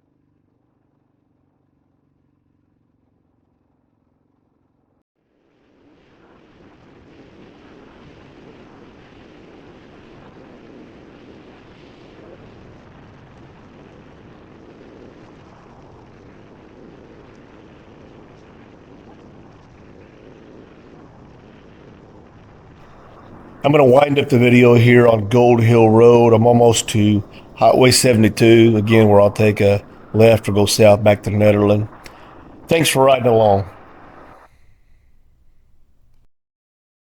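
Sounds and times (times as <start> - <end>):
faint low hum: 22.9 - 36.3.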